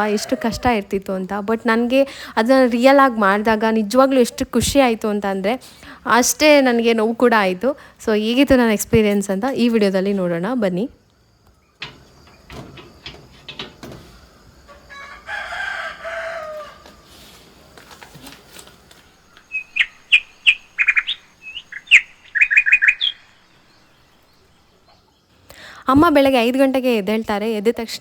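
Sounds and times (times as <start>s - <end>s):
birds chirping: 18.9s - 26.4s.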